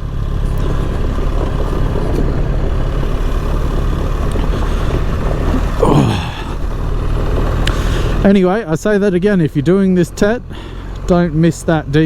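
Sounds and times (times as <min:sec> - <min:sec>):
motorcycle engine running: 0:00.0 - 0:08.6
wind and road noise: 0:00.0 - 0:12.0.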